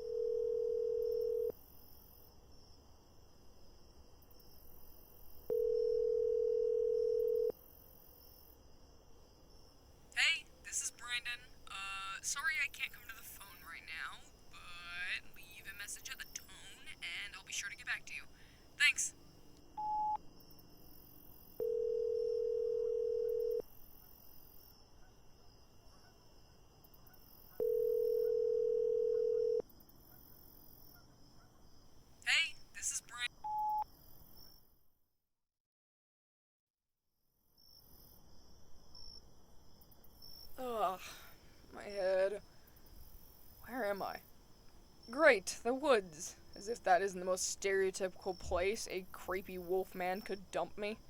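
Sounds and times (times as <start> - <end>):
telephone ringback tone: 0.0 - 1.5, 5.5 - 7.5, 21.6 - 23.6, 27.6 - 29.6.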